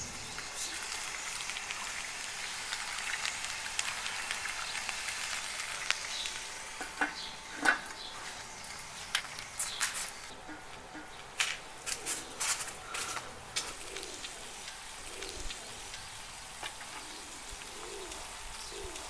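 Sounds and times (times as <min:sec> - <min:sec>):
food sizzling: 0:00.0 - 0:10.6, 0:11.4 - 0:19.0.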